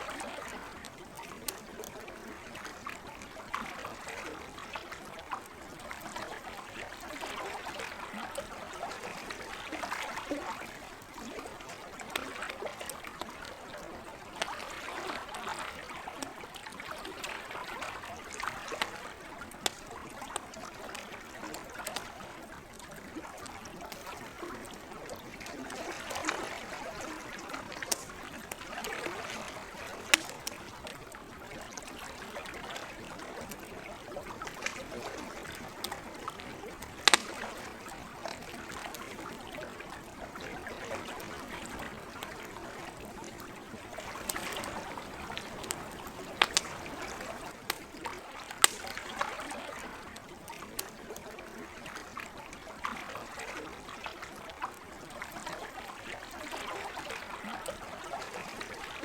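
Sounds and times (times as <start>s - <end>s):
campfire crackling: 0.0s - 58.8s
lake water lapping: 0.0s - 59.0s.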